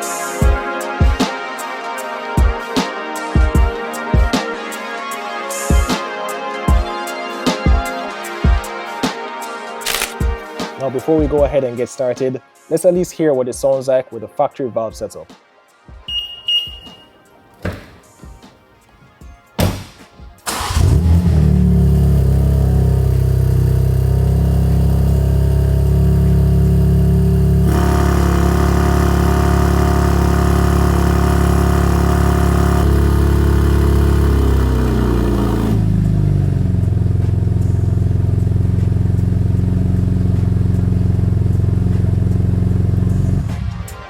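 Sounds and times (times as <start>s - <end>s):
car engine starting and idling: 20.4s - 43.6s.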